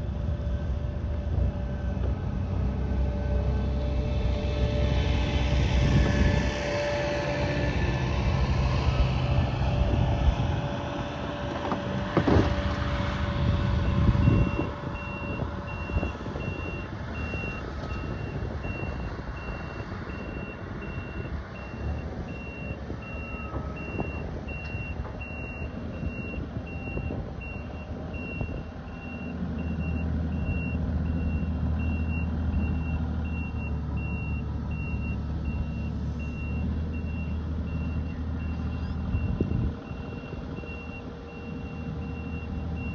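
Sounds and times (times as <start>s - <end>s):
reversing alarm beeping: 13.8s - 42.9s.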